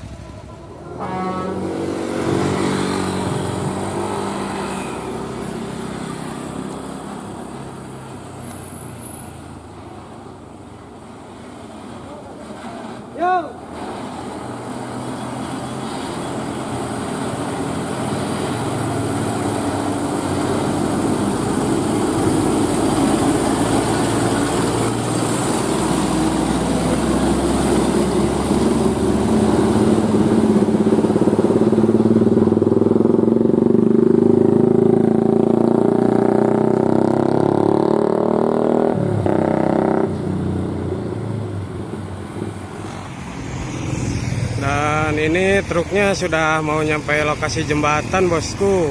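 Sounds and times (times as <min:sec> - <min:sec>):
road noise: 0:00.0 - 0:48.9.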